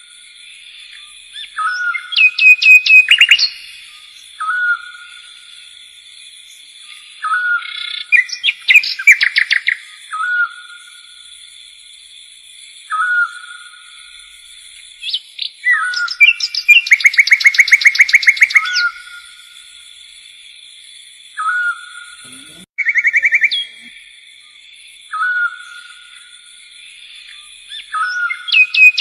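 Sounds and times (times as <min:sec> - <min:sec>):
rapid bird chirps: 0:00.0 - 0:12.1, 0:12.7 - 0:29.0
songbird whistled call: 0:00.7 - 0:05.5, 0:06.4 - 0:11.2, 0:12.9 - 0:14.3, 0:14.9 - 0:19.7, 0:21.4 - 0:24.0, 0:25.1 - 0:26.2, 0:27.1 - 0:29.0.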